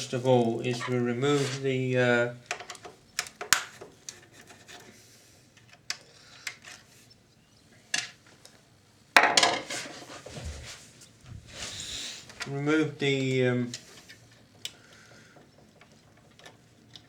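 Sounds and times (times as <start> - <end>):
tools and small parts clicking: 13.7 - 17.0.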